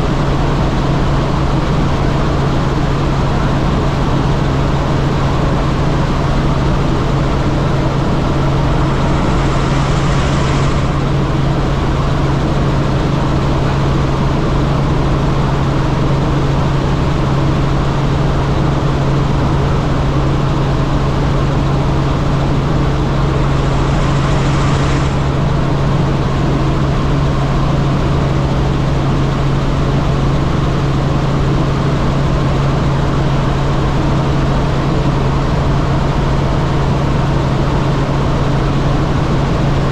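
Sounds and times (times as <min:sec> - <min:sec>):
helicopter drone inside cabin: 0:00.0 - 0:39.9
rushing noise: 0:06.0 - 0:13.5, 0:20.7 - 0:27.3
hiss surges: 0:07.6 - 0:11.9, 0:22.9 - 0:25.9.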